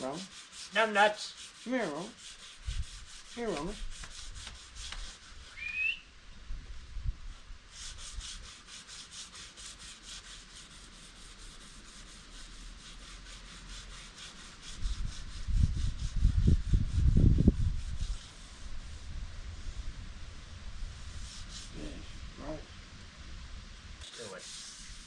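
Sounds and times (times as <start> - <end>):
sandpaper scratching on metal: 0.0 - 5.6, 7.7 - 19.2, 21.0 - 22.1, 24.0 - 25.0.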